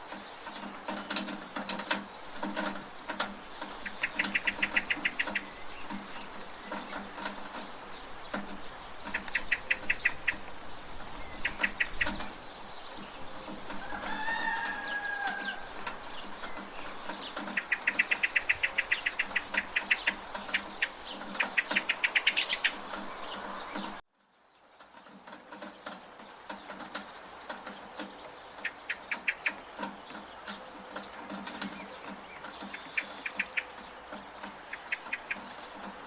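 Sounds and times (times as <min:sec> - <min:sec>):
chickens clucking: 0:00.0 - 0:24.0, 0:25.0 - 0:36.0
rain hissing: 0:00.0 - 0:36.0
falling fowl call: 0:13.8 - 0:15.8.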